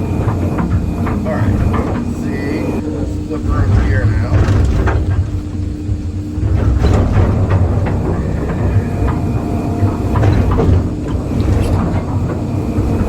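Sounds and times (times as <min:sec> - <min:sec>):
excavator diesel engine: 0:00.0 - 0:13.0.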